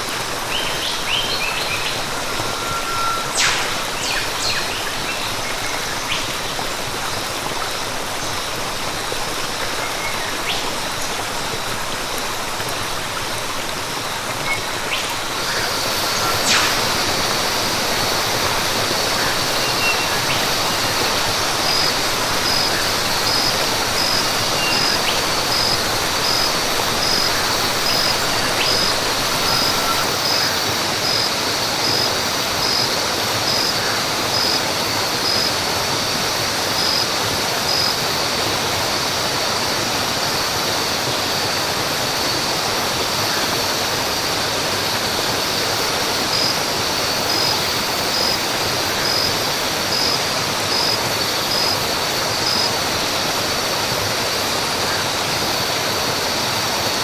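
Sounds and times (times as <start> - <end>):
falling water rushing: 0.0 - 57.0
high insect drone: 0.0 - 57.0
faint bird chirps: 0.5 - 6.4, 14.9 - 30.5.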